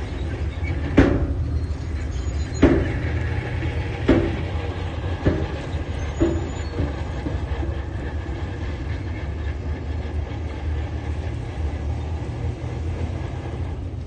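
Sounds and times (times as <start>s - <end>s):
diesel machine rumbling: 0.0s - 14.0s
sharp knock: 4.1s - 4.4s.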